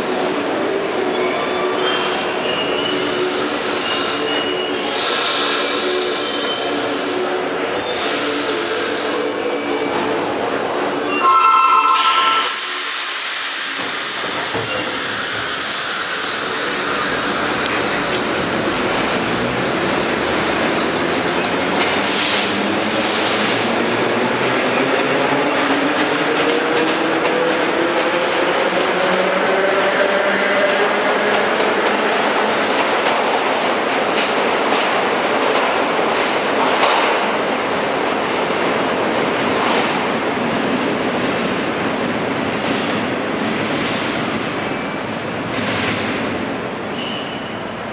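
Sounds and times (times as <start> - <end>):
train wheels rushing on rails: 11.8 - 47.9.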